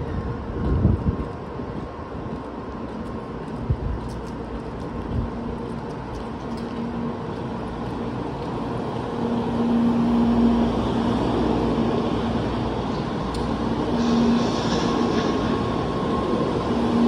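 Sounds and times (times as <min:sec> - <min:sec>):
electric train hum and running noise: 0:00.0 - 0:17.0.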